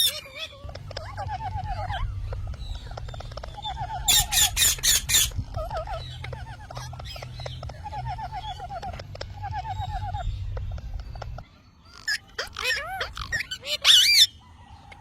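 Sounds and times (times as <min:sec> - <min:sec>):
parrot harsh squawks: 0:00.0 - 0:02.9, 0:03.5 - 0:07.2, 0:11.9 - 0:14.4
parrot warbled trill: 0:00.0 - 0:10.4, 0:11.9 - 0:14.4.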